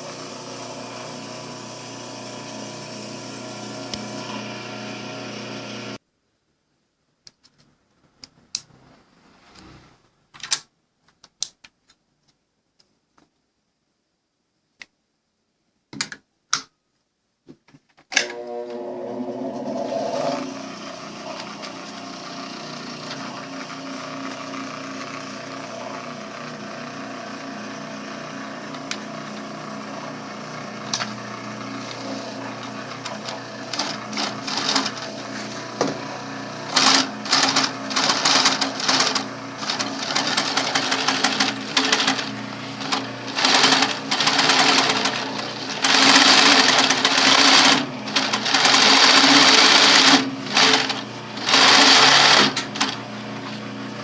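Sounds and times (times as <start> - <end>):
sewing machine hum: 0.0 - 6.0, 18.2 - 54.0
sewing machine stitching: 18.2 - 53.7.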